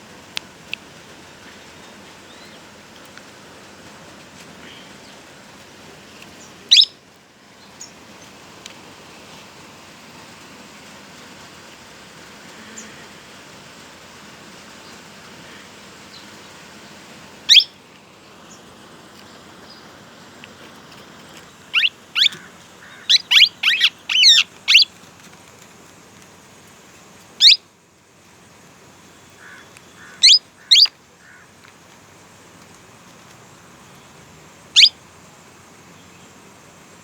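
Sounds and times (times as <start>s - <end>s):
steady low hiss: 0.0s - 37.0s
parakeets calling: 6.4s - 7.0s, 17.5s - 17.8s, 21.3s - 24.9s, 27.4s - 27.6s, 29.4s - 31.4s, 34.7s - 35.0s.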